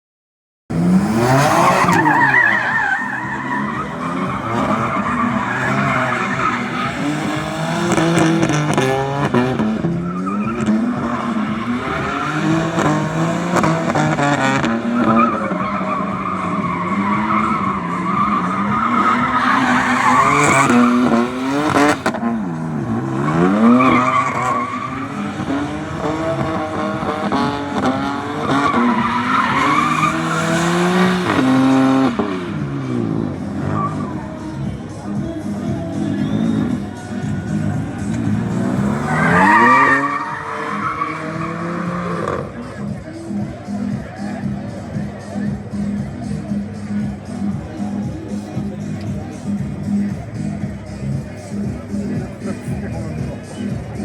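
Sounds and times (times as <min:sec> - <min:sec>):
car engine revving hard: 0:00.7 - 0:54.0
tyres squealing: 0:00.8 - 0:32.5, 0:33.5 - 0:42.6.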